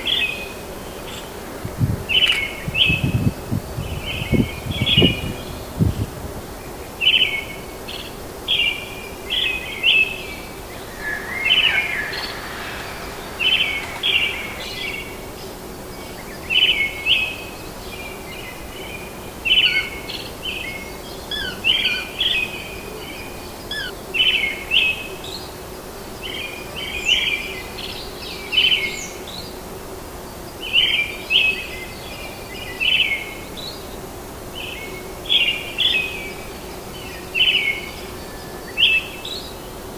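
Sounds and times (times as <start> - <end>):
background hiss: 0.0 - 6.4, 10.7 - 15.4
birds chirping: 0.0 - 6.4, 10.8 - 15.2.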